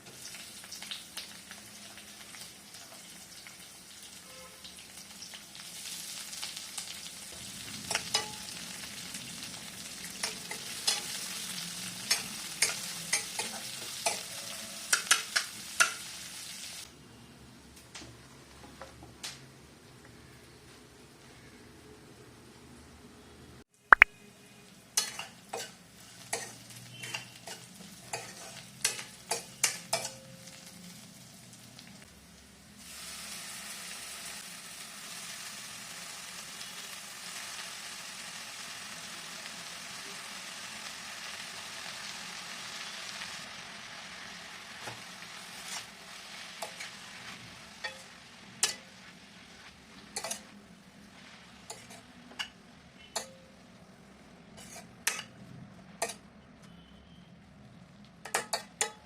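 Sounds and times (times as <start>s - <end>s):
food sizzling in hot oil: 0.0s - 16.9s, 24.7s - 56.2s
metal utensil clinking on pan: 7.9s - 8.5s, 10.2s - 11.2s, 12.1s - 16.0s, 25.0s - 30.6s, 47.8s - 49.0s, 50.2s - 50.5s, 51.7s - 53.6s, 54.6s - 55.4s, 56.0s - 56.2s, 58.2s - 59.0s.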